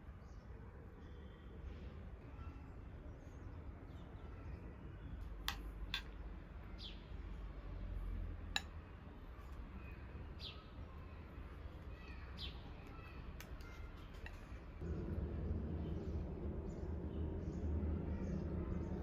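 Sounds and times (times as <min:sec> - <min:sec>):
bird chirping: 0:09.8 - 0:11.2
steady low hum: 0:14.7 - 0:19.0.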